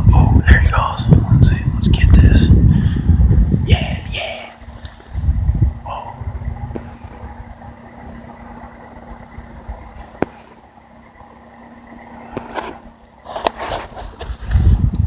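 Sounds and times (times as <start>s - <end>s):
low mechanical hum: 0.0s - 15.0s
handling rustle: 12.3s - 14.7s.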